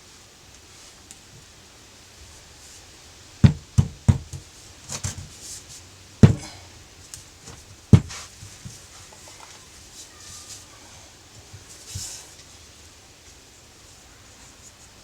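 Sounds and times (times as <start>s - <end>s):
knocks and taps on metal parts: 3.4s - 4.4s.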